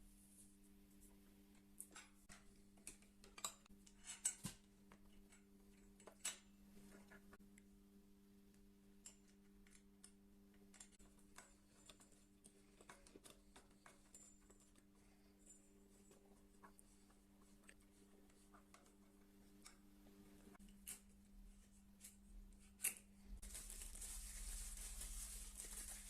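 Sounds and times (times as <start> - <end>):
faint steady hum: 0.0 - 26.0
metal parts clicking and tapping: 1.8 - 6.5.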